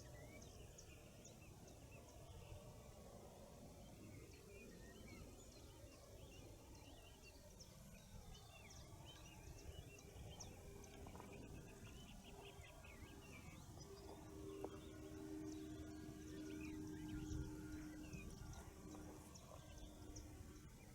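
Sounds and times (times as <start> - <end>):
songbirds chirping and twittering: 0.0 - 20.9
steady low hum: 7.6 - 20.9
low background rumble: 9.3 - 20.9.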